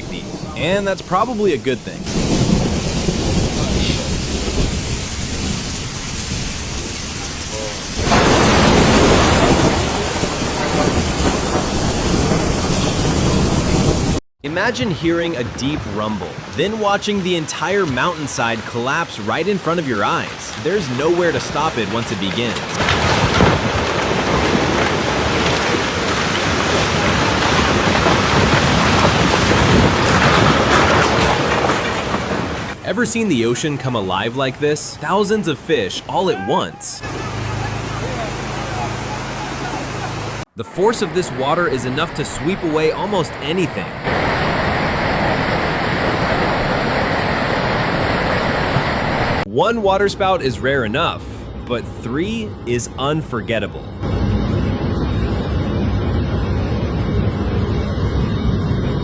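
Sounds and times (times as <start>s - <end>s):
heavy rain: 2.0s - 14.2s, 15.2s - 32.8s, 37.0s - 49.5s
low rumbling thunder: 2.0s - 14.2s, 20.1s - 32.8s, 40.9s - 49.5s
water rushing: 2.0s - 32.8s, 34.6s - 49.5s
wind buffeting microphone: 2.1s - 14.2s.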